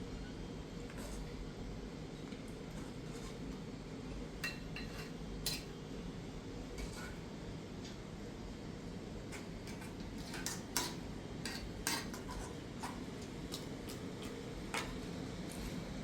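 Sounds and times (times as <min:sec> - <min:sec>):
kitchenware clinking: 0:04.4 - 0:05.7, 0:10.3 - 0:13.0.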